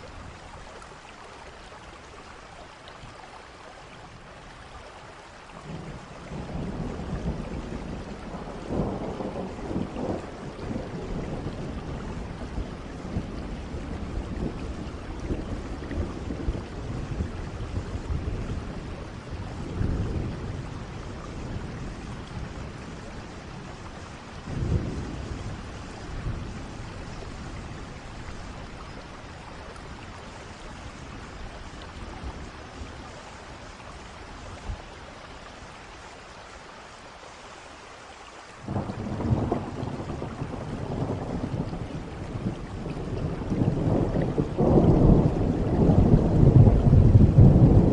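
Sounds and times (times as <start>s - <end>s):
steady rain: 0.0s - 47.9s
thunder rumbling: 5.6s - 33.8s, 38.6s - 47.9s
loud thunder clap: 43.3s - 47.9s.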